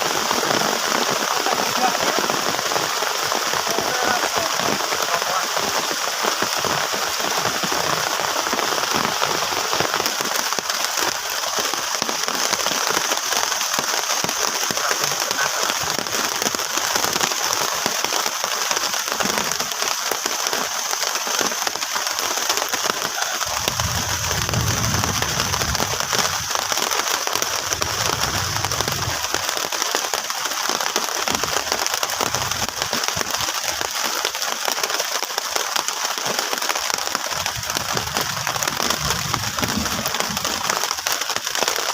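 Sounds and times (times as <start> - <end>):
heavy rain on plastic sheet: 0.0 - 41.9
low rumble: 23.5 - 26.7.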